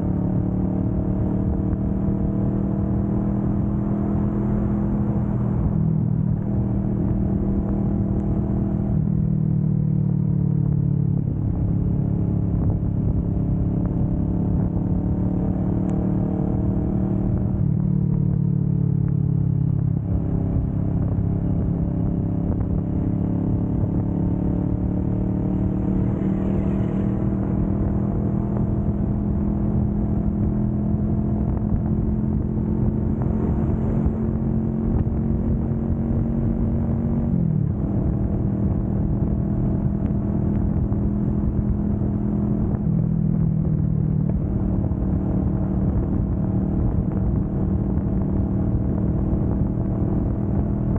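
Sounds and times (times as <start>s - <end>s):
motorcycle engine at highway speed: 0.0s - 50.9s.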